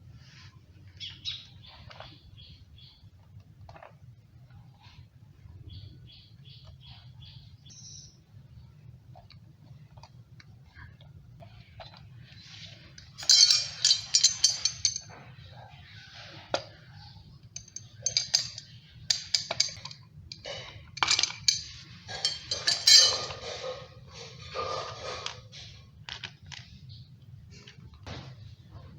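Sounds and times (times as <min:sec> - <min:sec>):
kettle parts clinking and rattling: 0:12.7 - 0:15.3, 0:17.5 - 0:25.4.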